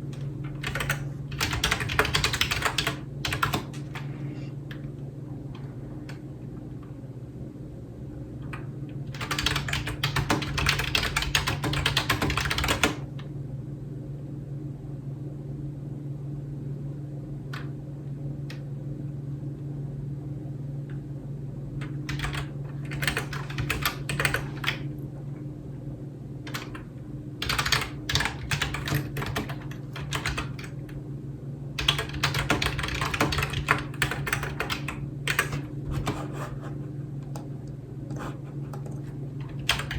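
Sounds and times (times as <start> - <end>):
steady low hum: 0.0 - 39.9
computer keyboard typing: 0.6 - 4.1, 8.5 - 13.1, 22.1 - 24.9, 26.5 - 30.8, 31.8 - 36.3, 38.7 - 39.9.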